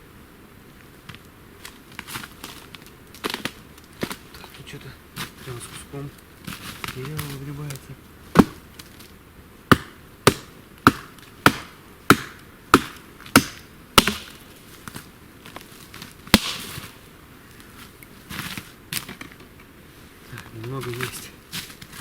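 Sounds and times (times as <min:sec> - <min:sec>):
hatchet chopping wood: 0:08.3 - 0:08.6, 0:09.7 - 0:14.4, 0:16.3 - 0:16.8.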